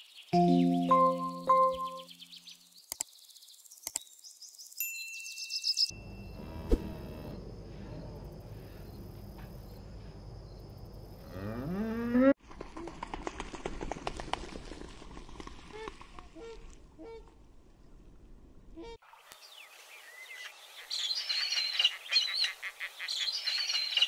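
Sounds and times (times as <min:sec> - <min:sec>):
high falling bird chirps: 0:00.0 - 0:06.5, 0:19.4 - 0:24.0
bell-like chime: 0:00.4 - 0:02.1, 0:04.8 - 0:06.4
sharp clicks: 0:02.9 - 0:03.1, 0:03.8 - 0:04.1
cow mooing: 0:06.3 - 0:07.4, 0:11.2 - 0:12.3.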